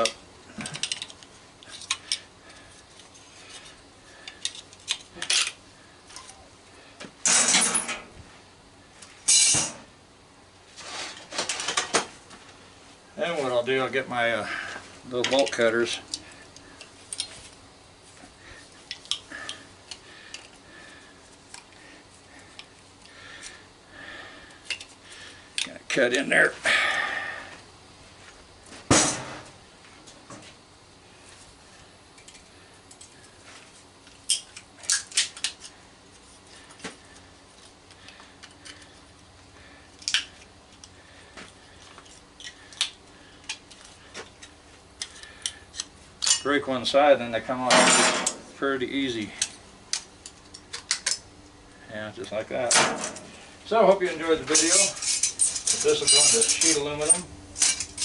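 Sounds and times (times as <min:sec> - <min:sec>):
metal tools clinking: 0:07.2 - 0:08.1, 0:09.3 - 0:09.7, 0:45.0 - 0:46.6, 0:54.5 - 0:58.0.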